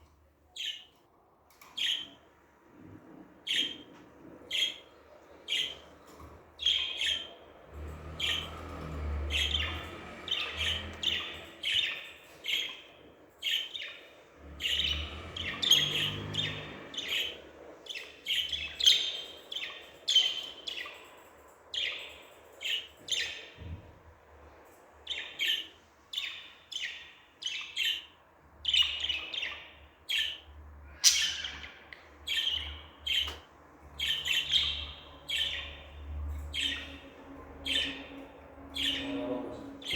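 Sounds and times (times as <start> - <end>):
budgerigars chirping: 6.6 - 7.4, 8.2 - 21.0, 25.1 - 33.4, 34.0 - 39.9.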